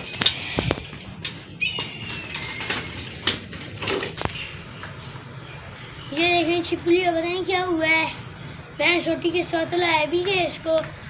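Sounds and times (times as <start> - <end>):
bicycle rattling over rough ground: 0.0 - 4.4.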